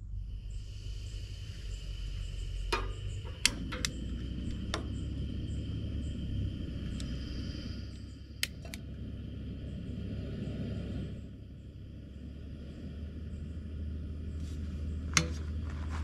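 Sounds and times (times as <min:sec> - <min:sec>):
gas stove hissing: 0:00.0 - 0:16.0
igniter clicks: 0:02.6 - 0:05.4, 0:06.8 - 0:07.2, 0:07.9 - 0:08.9, 0:15.1 - 0:15.6.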